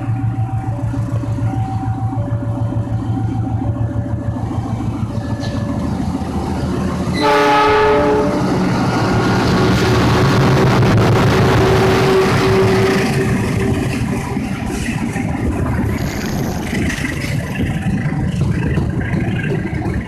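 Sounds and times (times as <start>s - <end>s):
train low rumble: 0.0s - 20.0s
train running past: 0.0s - 20.0s
train horn: 7.1s - 8.8s, 11.4s - 13.4s.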